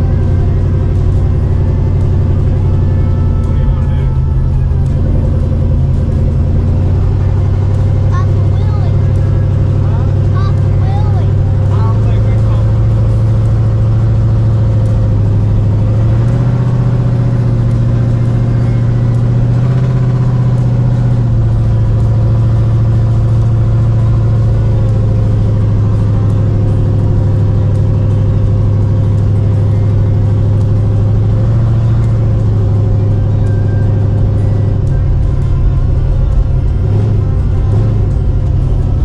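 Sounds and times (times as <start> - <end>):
car engine droning: 0.0 - 39.0.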